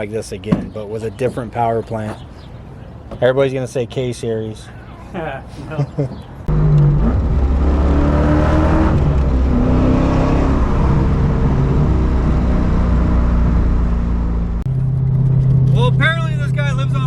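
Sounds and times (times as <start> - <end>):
loud car engine running: 6.5 - 17.0.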